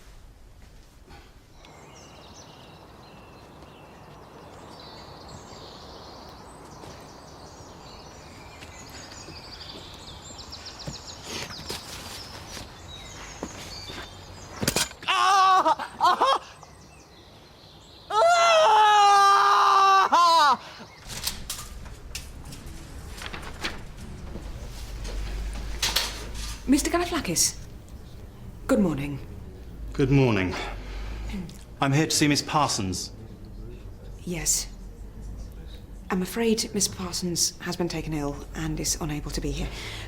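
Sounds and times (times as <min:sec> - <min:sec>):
birds chirping: 0:01.2 - 0:15.0, 0:15.8 - 0:18.7, 0:20.6 - 0:40.0
loud wavering cry: 0:18.1 - 0:20.6.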